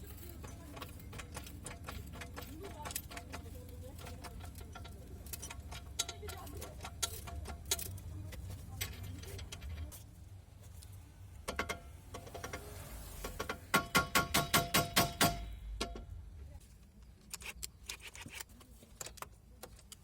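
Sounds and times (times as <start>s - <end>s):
hand tools clicking on metal: 0.0s - 10.0s.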